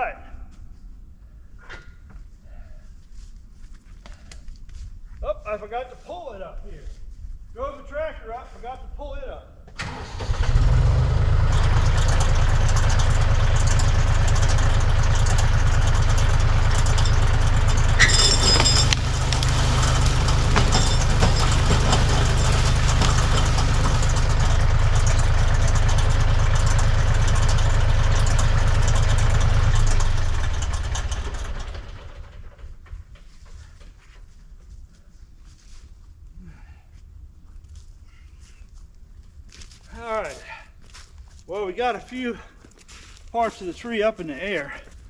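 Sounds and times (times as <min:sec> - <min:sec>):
tractor engine idling: 0:09.8 - 0:33.9
sharp metal clank: 0:18.0 - 0:23.4.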